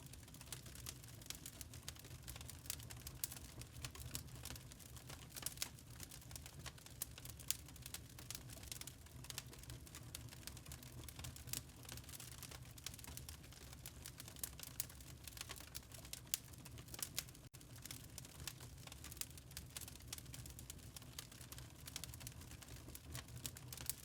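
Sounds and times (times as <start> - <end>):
low rumble of flames: 0.0 - 24.0
wood fire crackling: 0.0 - 24.0.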